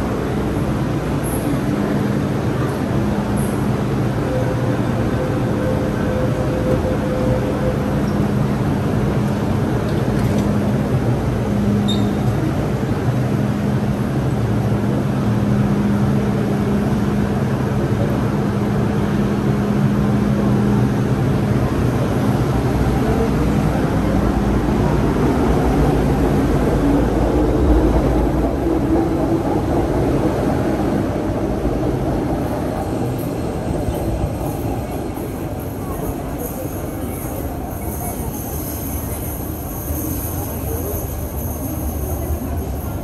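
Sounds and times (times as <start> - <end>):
train rumbling with low hum: 0.0 - 43.0.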